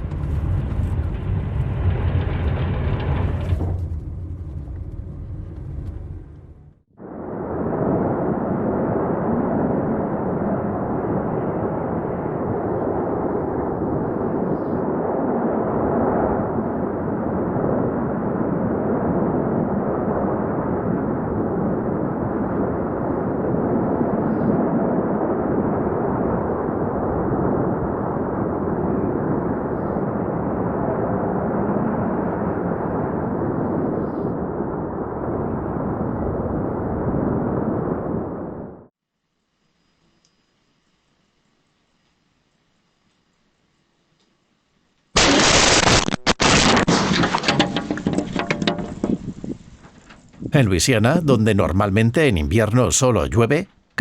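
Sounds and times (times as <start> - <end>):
strong wind buffeting microphone: 0.0 - 38.9, 48.8 - 50.6.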